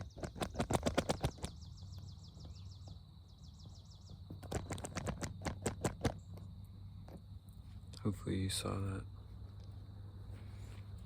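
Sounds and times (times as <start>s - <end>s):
rapid crunching clicks: 0.0s - 1.6s, 4.3s - 6.5s
insects trilling: 0.0s - 11.0s.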